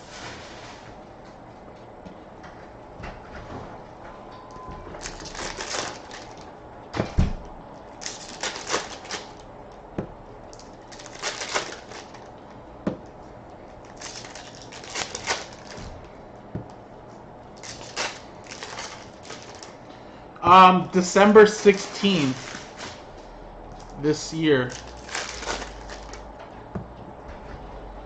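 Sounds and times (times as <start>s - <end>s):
card wrappers crinkling: 5.0s - 6.5s, 7.8s - 9.4s, 10.5s - 12.3s, 13.8s - 15.9s, 17.6s - 19.8s, 21.0s - 23.0s, 23.8s - 26.3s.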